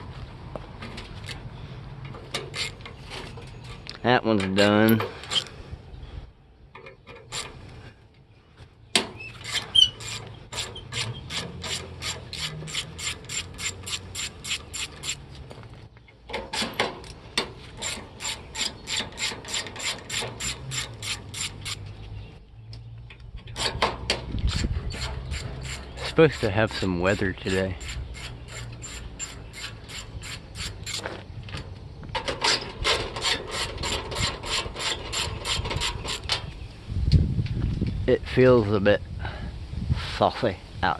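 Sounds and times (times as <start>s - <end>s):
hand ratchet clicking: 9.4s - 15.2s, 17.8s - 21.8s, 24.4s - 31.1s.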